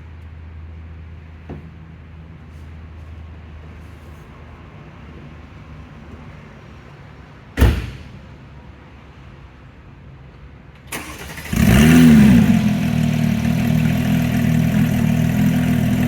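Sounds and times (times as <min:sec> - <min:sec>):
car door shutting: 0:07.6 - 0:08.2.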